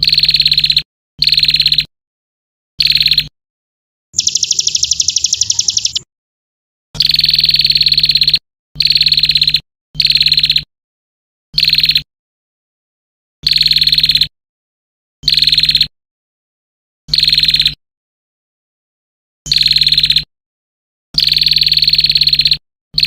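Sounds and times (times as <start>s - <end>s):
buzzy bird trill: 0.0s - 1.9s, 2.8s - 3.3s, 4.2s - 6.1s, 7.0s - 10.6s.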